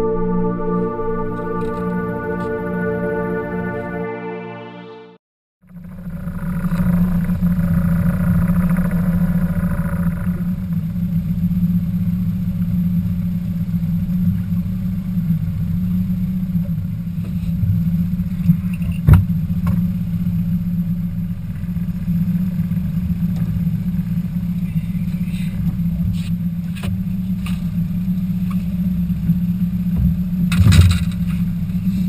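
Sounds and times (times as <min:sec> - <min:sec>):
music: 0:00.0 - 0:05.2
outboard motor running: 0:05.6 - 0:32.0.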